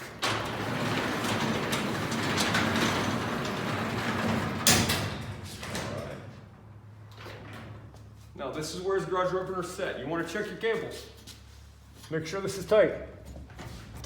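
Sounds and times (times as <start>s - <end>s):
garage door rolling and grinding: 0.0s - 8.0s.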